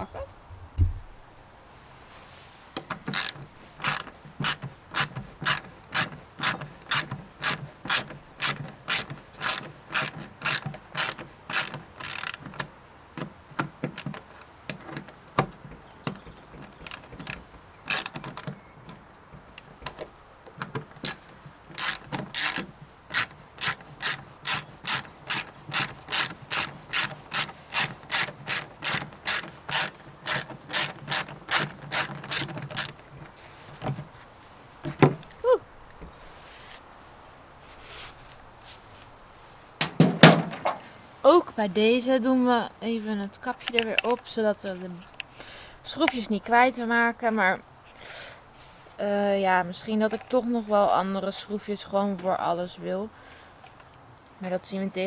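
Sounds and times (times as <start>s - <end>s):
ratchet wrench clicking: 3.1s - 12.4s, 16.8s - 18.2s, 21.8s - 33.0s.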